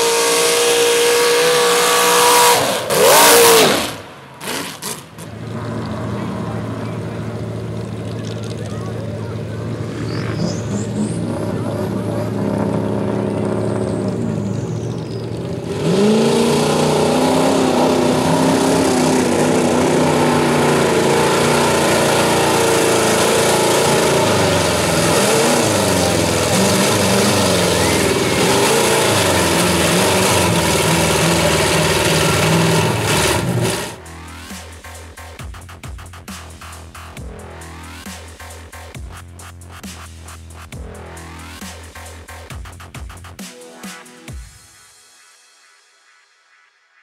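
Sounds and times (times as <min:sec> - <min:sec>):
vehicle engine at full throttle: 0:00.0 - 0:43.4
broad rushing noise: 0:15.9 - 0:34.0.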